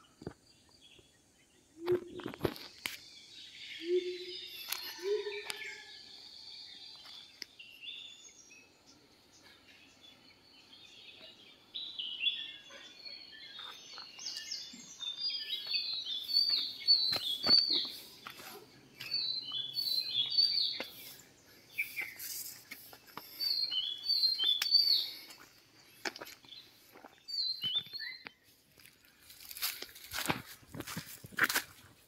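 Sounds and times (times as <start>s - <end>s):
small birds chirping: 0.0s - 30.3s
footsteps on dry leaves: 15.5s - 23.5s, 28.7s - 32.0s.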